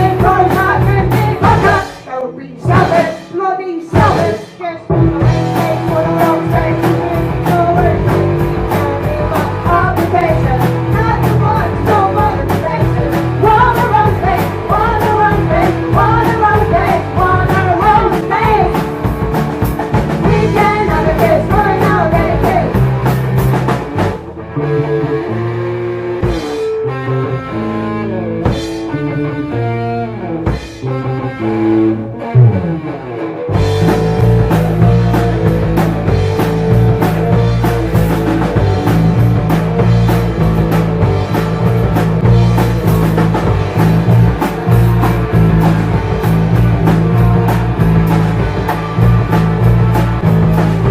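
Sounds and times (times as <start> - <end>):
person singing: 0.0 - 19.0, 20.2 - 22.9
drum kit: 0.0 - 50.9
electric guitar: 0.0 - 50.9.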